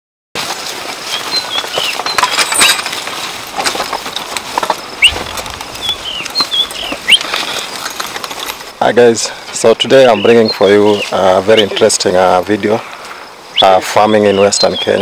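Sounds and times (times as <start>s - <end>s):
steady rustling: 0.4s - 9.8s
small birds chirping: 1.0s - 15.0s.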